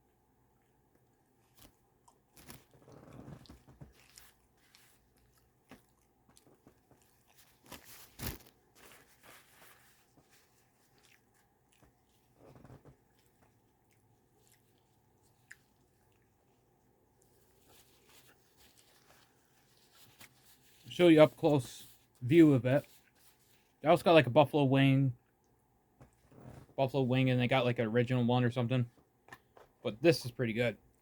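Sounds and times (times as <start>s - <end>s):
small food crunches: 1.4s - 16.4s
person chewing and biting: 1.5s - 8.6s.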